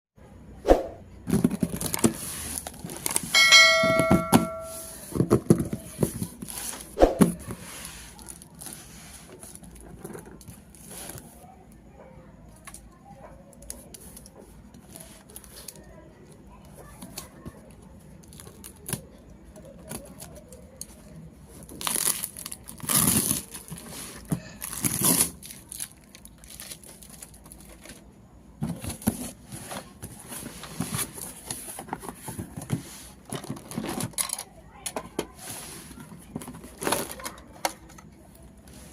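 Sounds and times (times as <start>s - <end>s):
packaging crinkling and tearing: 1.3s - 3.3s, 21.7s - 23.9s, 24.6s - 28.0s
short bell-like ring: 3.4s - 5.0s.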